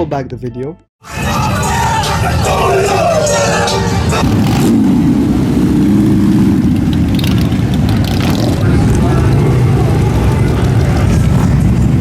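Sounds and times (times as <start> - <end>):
crowd shouting: 1.0 - 4.2
motorcycle engines rumbling: 1.1 - 12.0.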